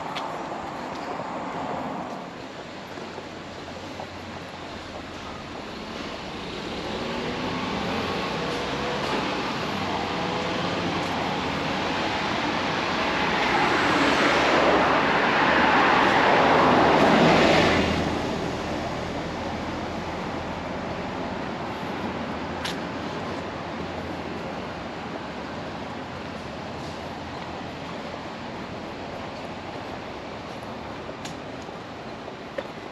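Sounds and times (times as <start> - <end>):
traffic hum: 0.0 - 32.9
vehicle passing by: 5.8 - 20.7.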